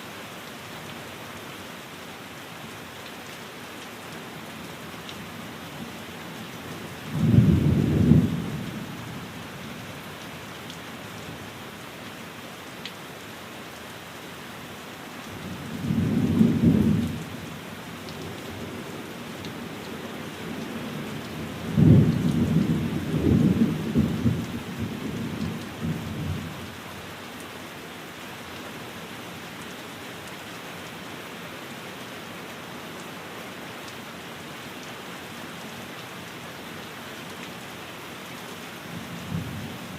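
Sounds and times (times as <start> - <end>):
rain on a window: 0.0 - 39.9.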